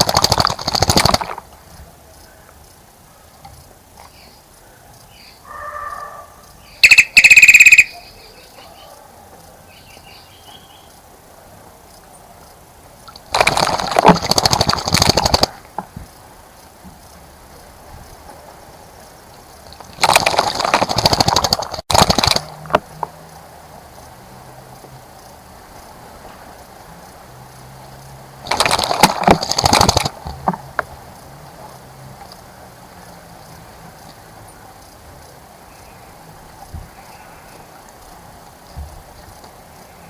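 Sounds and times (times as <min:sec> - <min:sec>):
bird splashing in water: 0:00.0 - 0:01.4, 0:13.1 - 0:15.7, 0:19.7 - 0:22.6, 0:28.4 - 0:30.3.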